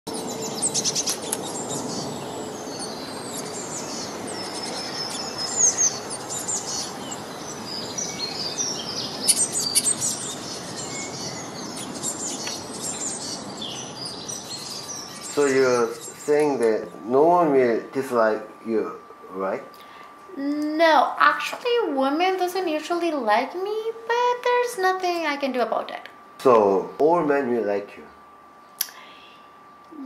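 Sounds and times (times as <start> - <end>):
small birds chirping and twittering: 0.1 - 20.2
outdoor ambient noise: 0.1 - 30.0.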